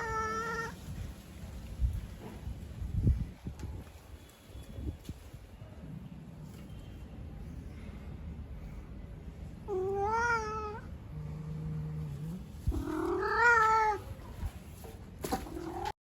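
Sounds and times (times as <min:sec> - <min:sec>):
cat meowing: 0:00.0 - 0:00.8, 0:09.7 - 0:10.9, 0:12.7 - 0:14.1.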